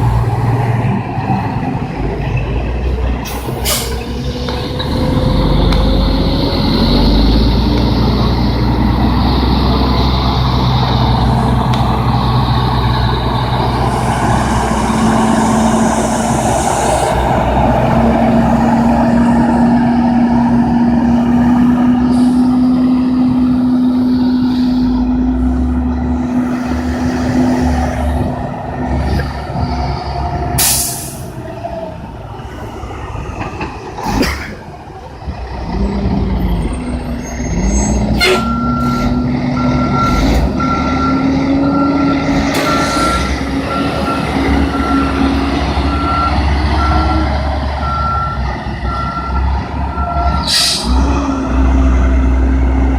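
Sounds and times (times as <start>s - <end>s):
diesel truck engines running: 0.0s - 52.9s
air brake hisses: 30.6s - 31.3s, 50.5s - 50.9s
reversing alarm beeping: 38.2s - 50.8s.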